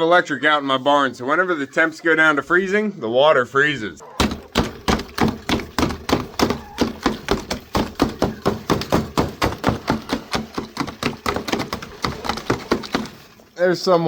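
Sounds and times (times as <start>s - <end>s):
rapid knocking on ice: 4.2s - 13.4s.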